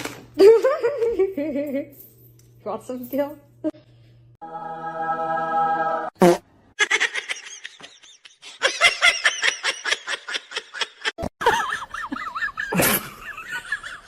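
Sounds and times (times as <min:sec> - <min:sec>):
person laughing hard: 0:06.8 - 0:14.0.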